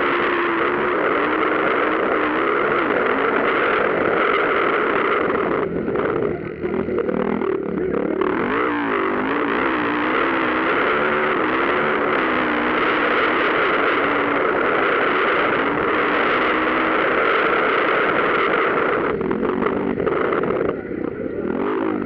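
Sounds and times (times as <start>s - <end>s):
dirt bike engines revving: 0.0s - 22.0s.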